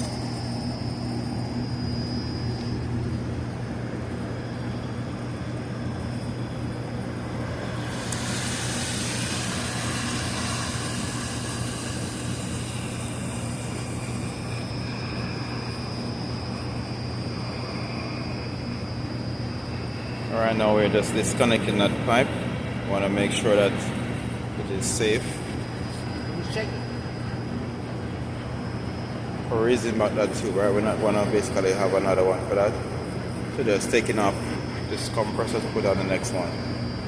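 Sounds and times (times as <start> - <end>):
low machinery hum: 0.0 - 37.0
torch flame hissing: 7.4 - 15.0.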